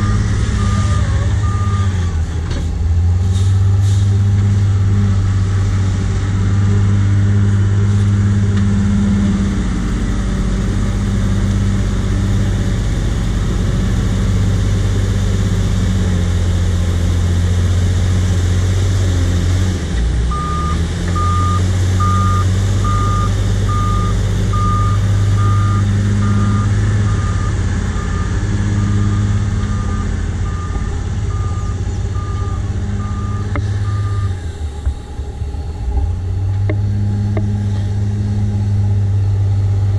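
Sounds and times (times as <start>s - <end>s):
reversing alarm beeps: 0.0s - 2.0s, 20.3s - 34.4s
diesel loader engine under load: 0.0s - 39.9s.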